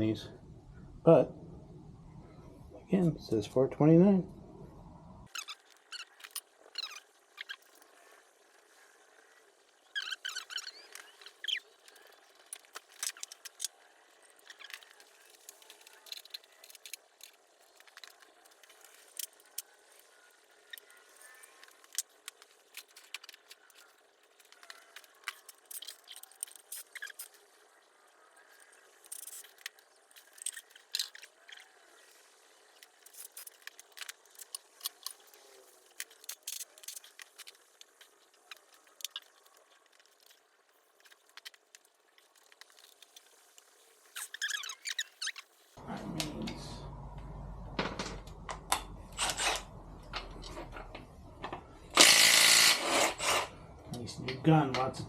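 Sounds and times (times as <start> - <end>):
faint squeaks: 5.2 - 22.0, 44.0 - 45.8.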